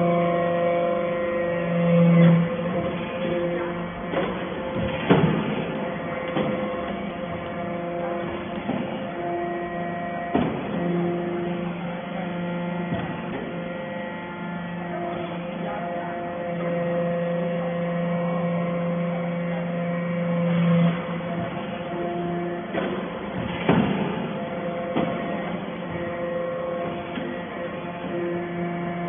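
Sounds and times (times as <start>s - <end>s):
baler motor hum: 0.0s - 29.0s
sharp knocks: 4.1s - 7.6s, 22.7s - 25.6s.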